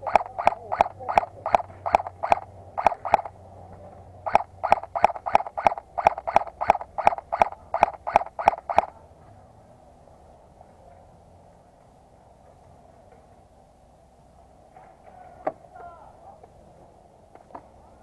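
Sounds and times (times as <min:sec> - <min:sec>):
frog croaking: 0:00.0 - 0:03.4, 0:04.2 - 0:09.0.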